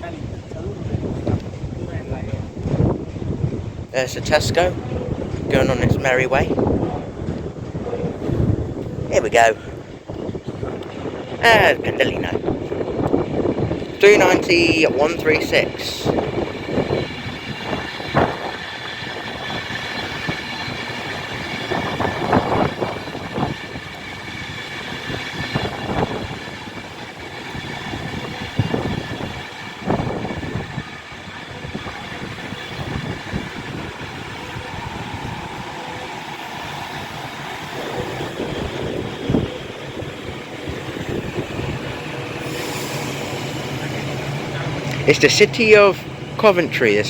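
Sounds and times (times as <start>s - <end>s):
electric train whine: 0.0s - 47.0s.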